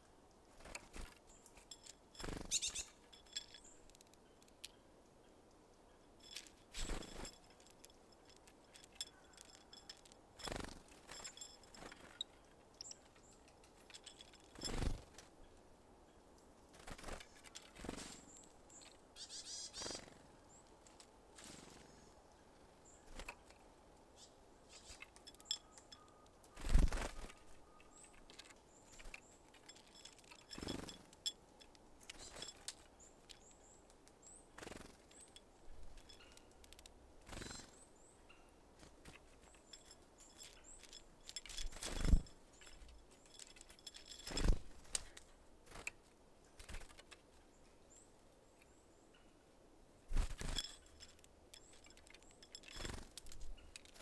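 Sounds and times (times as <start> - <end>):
faint high bird chirps: 1.3 - 7.3, 17.4 - 20.8, 24.1 - 31.0, 32.0 - 38.6
birds knocking at feeder: 24.8 - 33.5.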